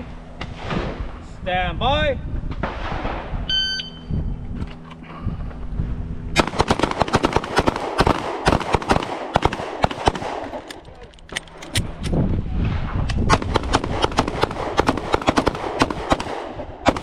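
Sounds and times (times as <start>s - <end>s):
shot timer beep: 3.5s - 4.1s
handguns firing rapid shots: 6.4s - 12.1s, 13.2s - 17.0s.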